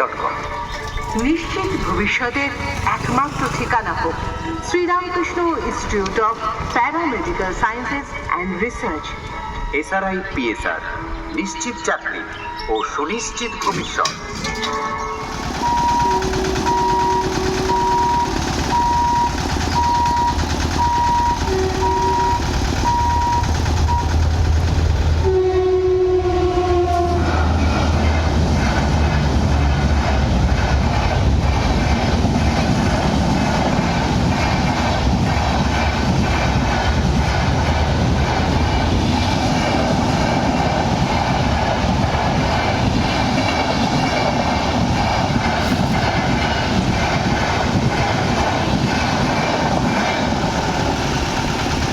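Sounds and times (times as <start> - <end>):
train coaches rushing and rumbling: 0.0 - 51.9
train horn blasts: 14.6 - 18.1, 21.4 - 22.4, 25.2 - 27.7.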